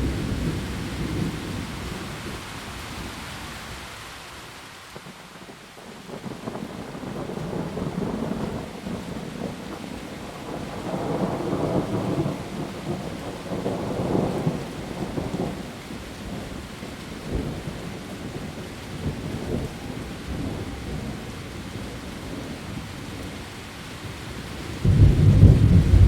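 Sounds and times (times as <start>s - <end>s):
heavy rain on leaves: 0.0s - 26.0s
rolling thunder: 24.8s - 26.0s.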